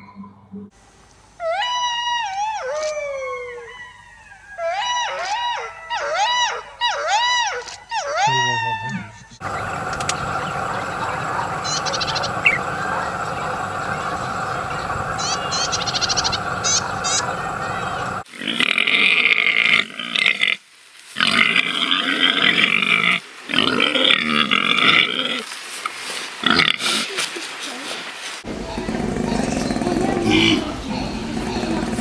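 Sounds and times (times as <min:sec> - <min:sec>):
outdoor background noise: 0:00.0 - 0:32.0
chirping trills: 0:01.4 - 0:18.2, 0:28.4 - 0:32.0.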